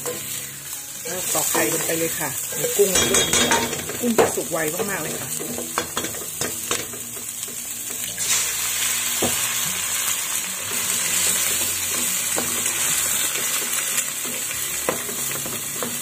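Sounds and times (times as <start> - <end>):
food sizzling in oil: 0.0 - 16.0
spatula knocking on pan: 3.0 - 7.1.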